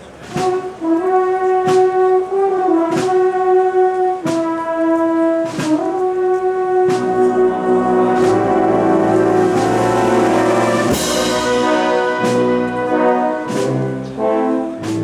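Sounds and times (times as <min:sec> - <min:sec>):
brass band playing a march: 0:00.0 - 0:15.0
sharp percussion stroke: 0:05.5 - 0:15.0.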